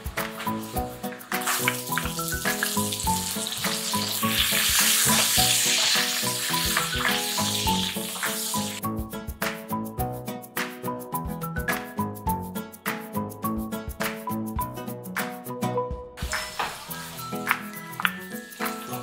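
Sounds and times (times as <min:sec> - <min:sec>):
garlic and onions sizzling in a pan: 0:00.0 - 0:08.8, 0:16.2 - 0:19.0
background music: 0:00.0 - 0:19.0.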